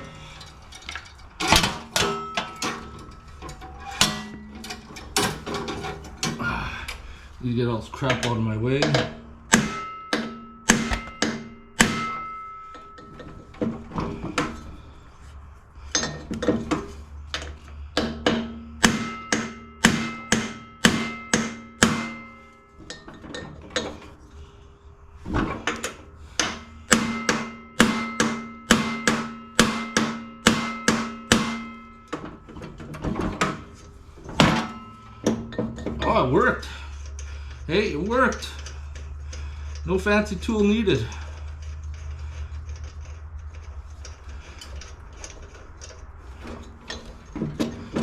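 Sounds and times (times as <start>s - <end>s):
hammer striking metal socket: 8.1s - 13.3s.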